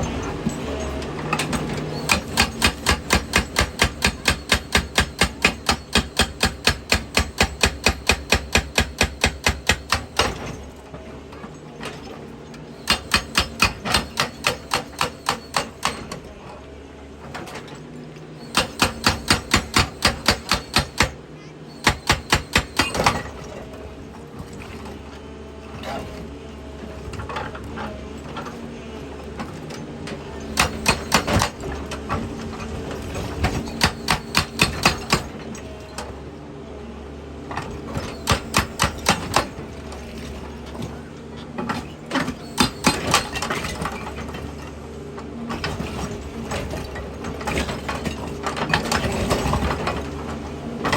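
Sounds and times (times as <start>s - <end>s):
hydraulic rock breaker hammering: 0.0s - 10.8s, 12.6s - 16.4s, 18.4s - 25.0s, 29.4s - 36.0s, 37.5s - 44.7s, 45.5s - 50.9s.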